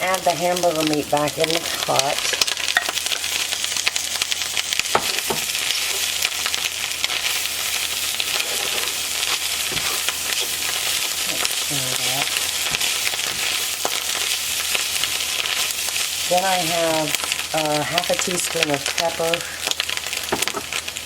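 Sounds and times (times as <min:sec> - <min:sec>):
food sizzling in a pan: 0:00.0 - 0:21.0
utensil scraping a pan: 0:07.2 - 0:16.0.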